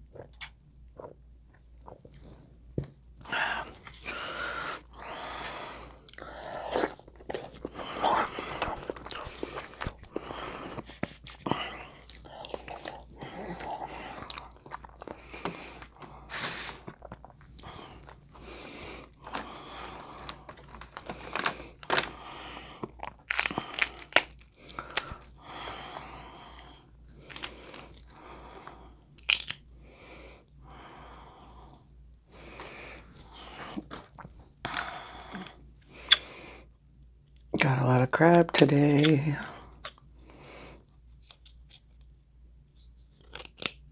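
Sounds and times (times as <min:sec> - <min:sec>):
chewing: 0:06.1 - 0:15.8
crab shells crunching and snapping: 0:22.8 - 0:25.8, 0:27.2 - 0:28.2, 0:29.2 - 0:29.6, 0:34.7 - 0:36.3, 0:43.1 - 0:43.9.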